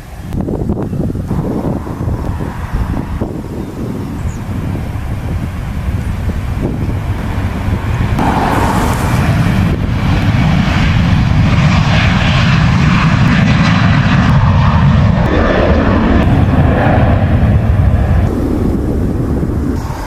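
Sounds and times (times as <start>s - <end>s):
jet engines on takeoff: 0.0s - 20.0s.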